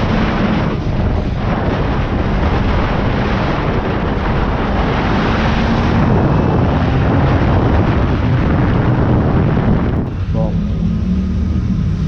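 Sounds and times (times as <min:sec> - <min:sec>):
wind noise on microphone: 0:00.0 - 0:12.0
motorcycle engine running: 0:08.4 - 0:12.0.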